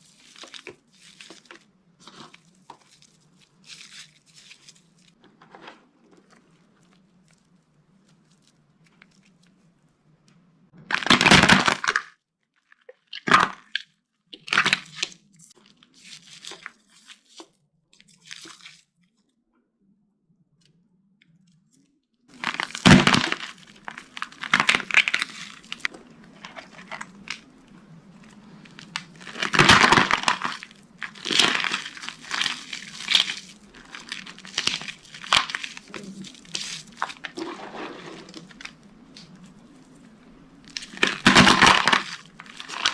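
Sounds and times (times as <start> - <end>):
dry soap crunching and cracking: 0.0 - 9.6, 10.9 - 12.1, 12.9 - 15.1, 22.3 - 42.9.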